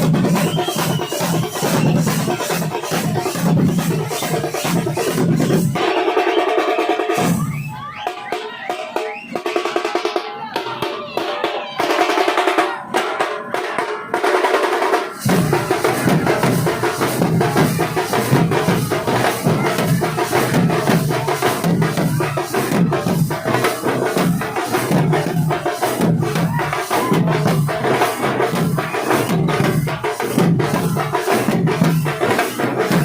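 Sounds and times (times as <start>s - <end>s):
high-pitched drum rolls: 0.0s - 33.0s
deep drum beat: 15.0s - 33.0s.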